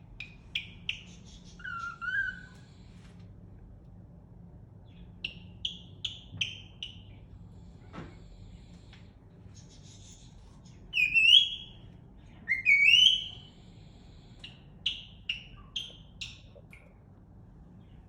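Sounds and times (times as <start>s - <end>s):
cockatiel chirps: 0.2s - 2.6s, 10.9s - 11.8s, 12.5s - 13.5s, 14.4s - 16.8s
cockatiel whistling: 1.6s - 2.6s, 11.0s - 11.8s, 12.5s - 13.4s.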